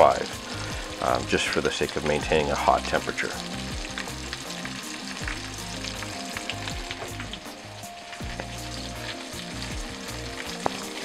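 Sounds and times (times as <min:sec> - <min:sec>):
fish frying in oil: 0:00.0 - 0:11.0.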